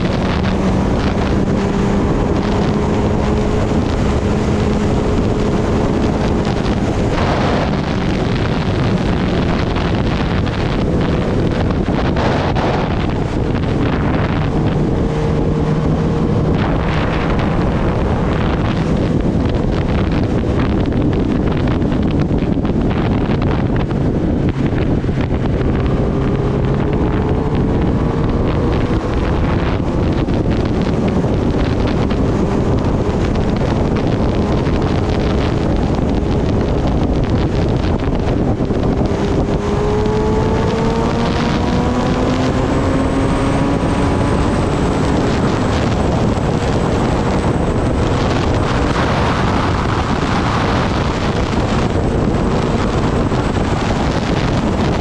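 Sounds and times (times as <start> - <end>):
motorcycle engine cruising: 0.0 - 55.0
wind rush on microphone: 0.0 - 55.0.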